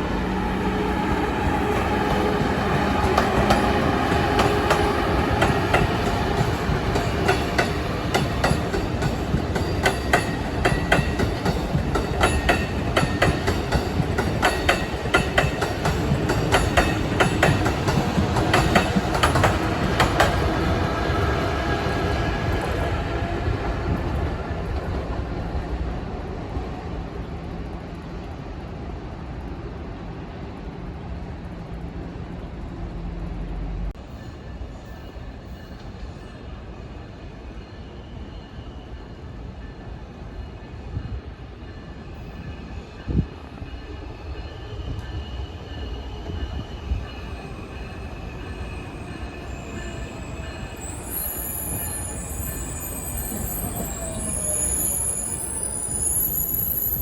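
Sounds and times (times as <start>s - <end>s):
train rumbling on rails: 0.0s - 57.0s
high-pitched wheel squeal: 48.5s - 57.0s.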